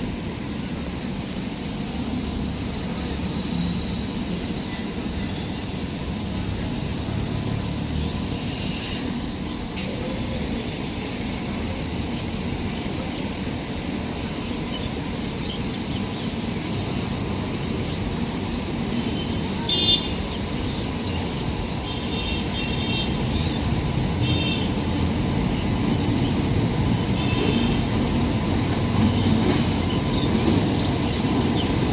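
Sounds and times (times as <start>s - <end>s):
train rumbling: 0.0s - 31.9s
birds chirping: 19.0s - 31.9s.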